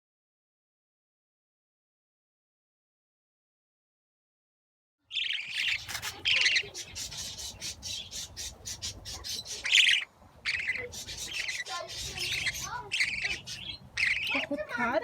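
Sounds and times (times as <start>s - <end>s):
budgerigars rapid short chirps: 5.1s - 14.5s
budgerigars harsh calls: 5.1s - 15.0s.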